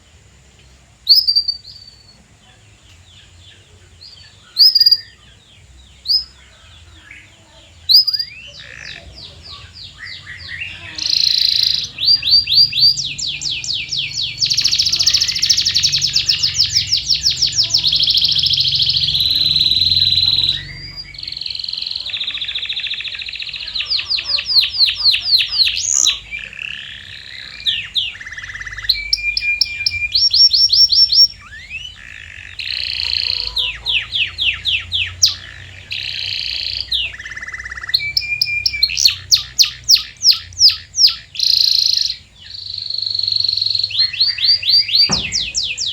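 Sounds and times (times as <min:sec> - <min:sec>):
canary singing trilled song: 0:01.0 - 0:45.9.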